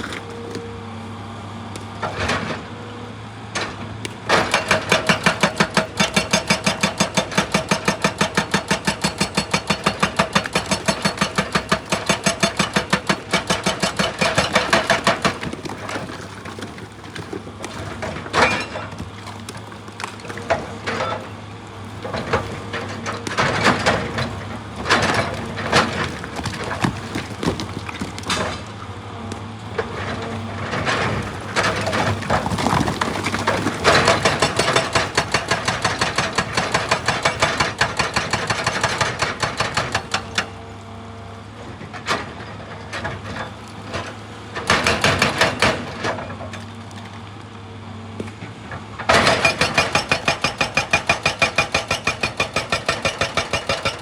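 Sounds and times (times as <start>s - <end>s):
diesel engine running: 0.0s - 51.0s
hydraulic breaker hammering rock: 4.0s - 40.6s, 43.2s - 46.6s, 49.0s - 54.0s.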